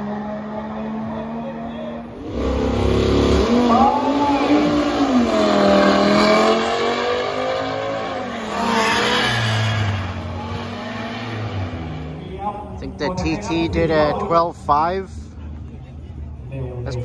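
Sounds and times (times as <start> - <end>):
car engine accelerating hard: 0.0 - 12.3.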